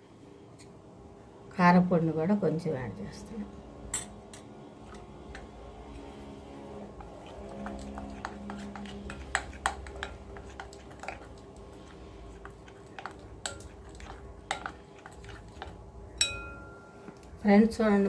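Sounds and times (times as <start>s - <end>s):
spoon tapping against bowl: 7.6s - 11.3s, 12.4s - 17.3s.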